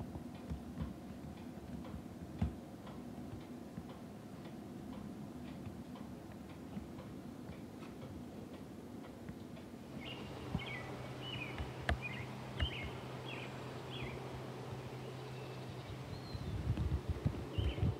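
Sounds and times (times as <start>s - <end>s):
low steady hum: 0.0s - 17.9s
outdoor background noise: 0.0s - 17.9s
bird chirping: 10.0s - 16.7s, 17.5s - 17.9s.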